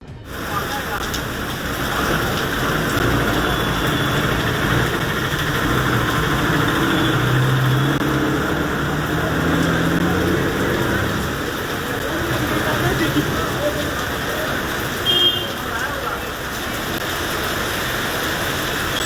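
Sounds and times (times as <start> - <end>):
vehicle engine running: 0.5 - 14.9.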